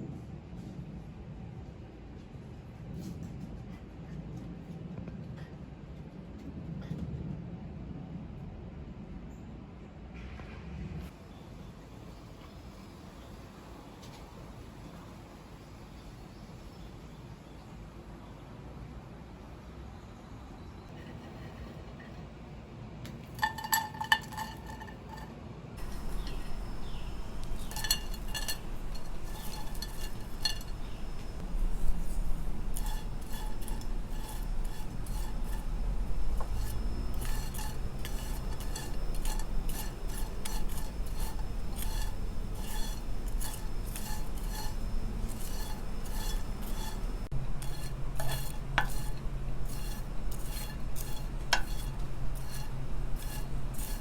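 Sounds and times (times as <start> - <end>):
spatula scraping in dry pan: 23.4 - 54.0
low steady hum: 25.8 - 54.0.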